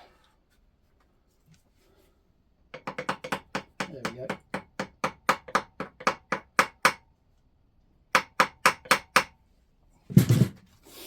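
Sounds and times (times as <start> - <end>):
hammer tapping screwdriver: 2.8 - 7.0.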